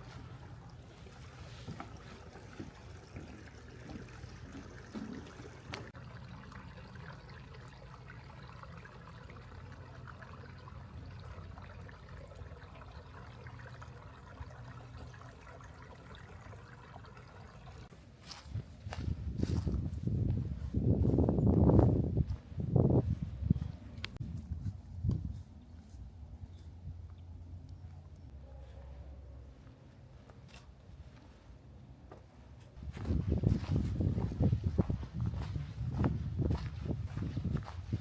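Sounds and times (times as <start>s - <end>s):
brook water trickling: 0.0s - 21.9s, 32.8s - 38.0s.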